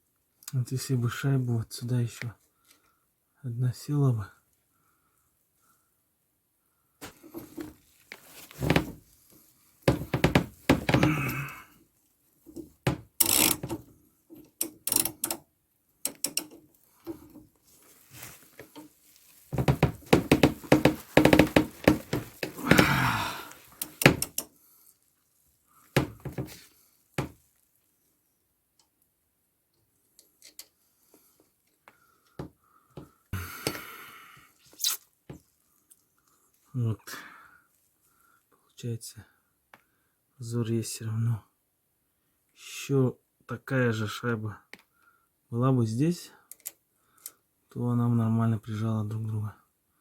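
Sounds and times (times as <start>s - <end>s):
hand tools knocking on metal: 19.6s - 22.9s.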